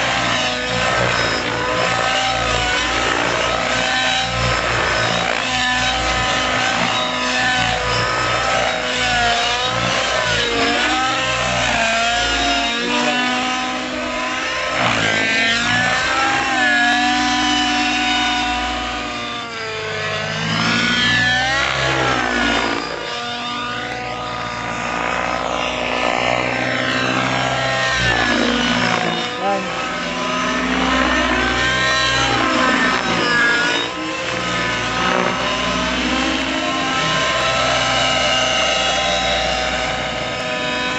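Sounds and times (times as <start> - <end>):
model helicopter engine and rotor: 0.0 - 40.9.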